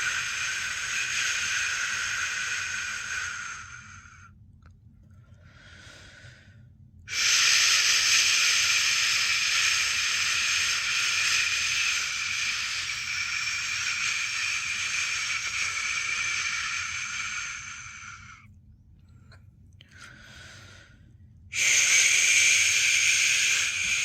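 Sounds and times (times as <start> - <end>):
person shushing: 7.1 - 18.4, 21.6 - 24.0.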